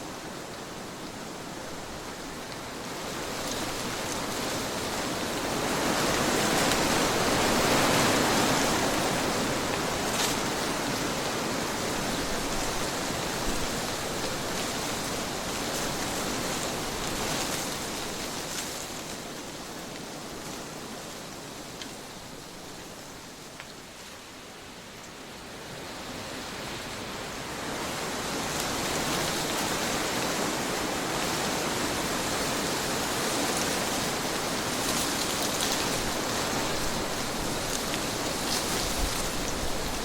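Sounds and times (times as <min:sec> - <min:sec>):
steady rushing wind: 0:00.0 - 0:40.0.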